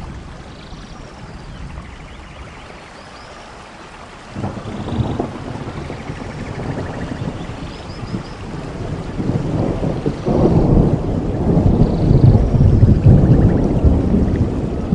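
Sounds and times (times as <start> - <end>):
steady rain: 0.0 - 14.9
thunder rumbling: 4.3 - 14.9.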